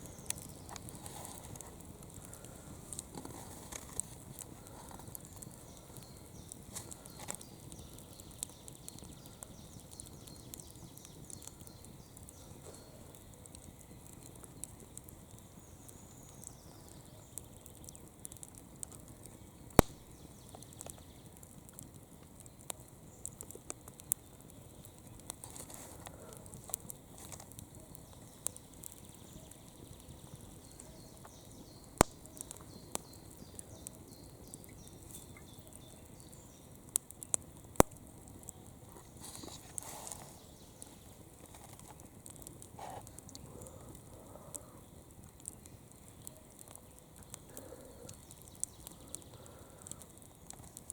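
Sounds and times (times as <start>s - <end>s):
campfire crackling: 0.0s - 50.9s
loud sharp pops: 19.8s - 20.2s, 32.0s - 33.1s.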